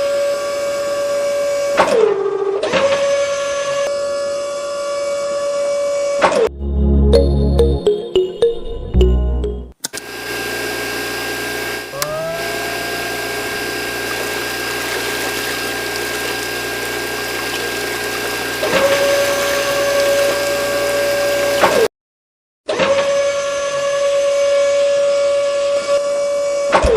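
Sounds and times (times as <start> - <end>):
water pump running: 10.0 - 21.9.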